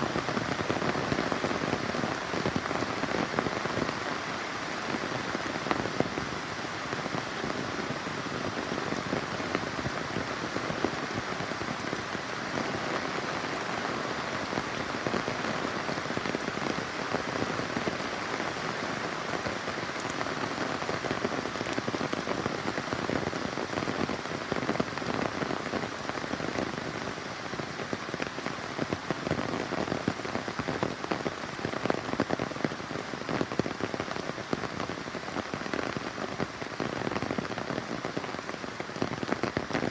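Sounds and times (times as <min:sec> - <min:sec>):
rain pattering on a surface: 0:00.0 - 0:39.9.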